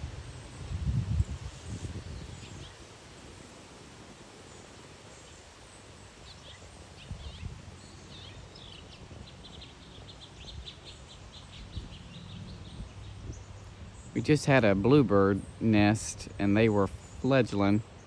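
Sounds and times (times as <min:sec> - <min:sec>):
wind thumps on microphone: 0:00.0 - 0:02.8, 0:07.0 - 0:07.6
small songbirds chirping: 0:00.0 - 0:18.0.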